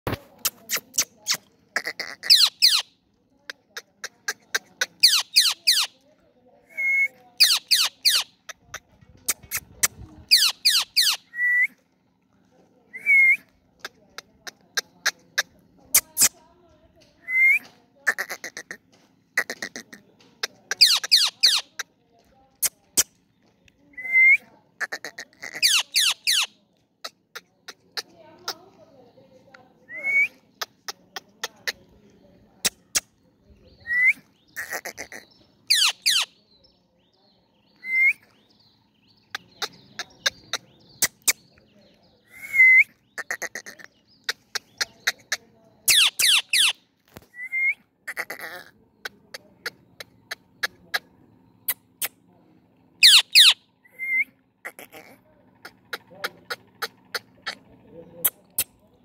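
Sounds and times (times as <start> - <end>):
parakeet shrill squawks: 2.2 - 2.8, 5.0 - 5.9, 7.4 - 8.3, 10.3 - 11.2, 20.8 - 21.6, 25.5 - 26.5, 34.6 - 36.3, 45.9 - 46.8, 53.0 - 53.6.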